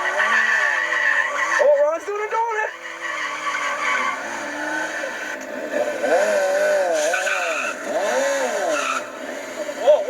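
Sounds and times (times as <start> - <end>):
motorcycle engine revving: 2.8 - 10.0.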